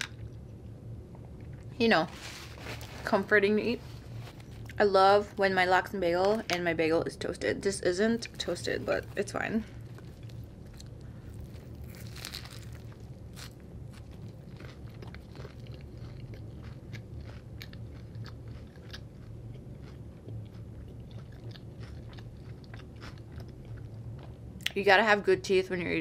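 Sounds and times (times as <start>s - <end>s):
close-up chewing with crunches: 9.1s - 24.4s
crunchy bite into sandwich: 9.9s - 20.4s.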